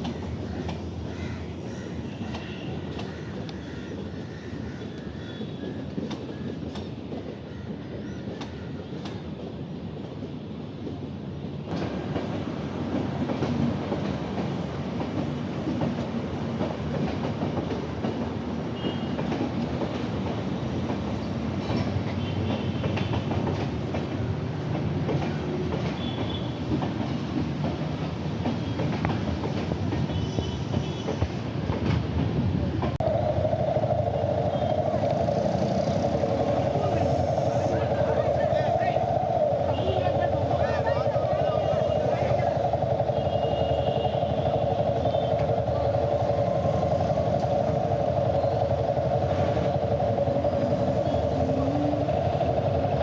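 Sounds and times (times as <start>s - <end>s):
road and wind rumble: 31.2s - 53.0s.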